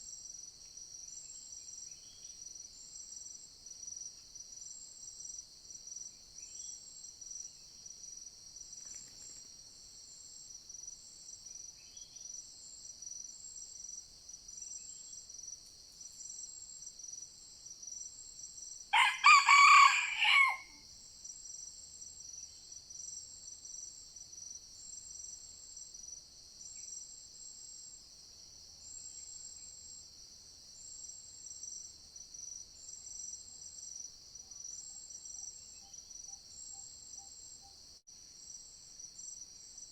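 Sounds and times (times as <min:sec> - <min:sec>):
forest insects chorus: 0:00.0 - 0:39.9
rooster crowing: 0:18.9 - 0:20.8.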